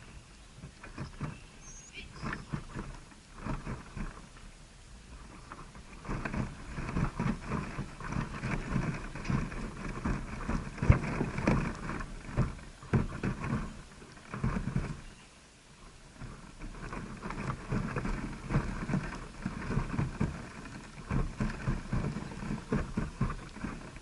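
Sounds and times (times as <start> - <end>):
close rustling and scratching: 0.0 - 24.0.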